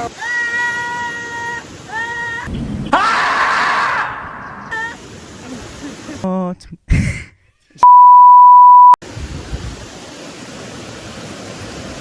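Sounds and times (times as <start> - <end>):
electronic censor bleep: 7.8 - 9.0.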